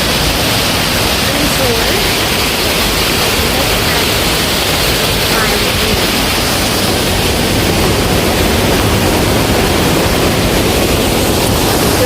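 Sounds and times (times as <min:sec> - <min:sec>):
rush of flowing water: 0:00.0 - 0:12.0.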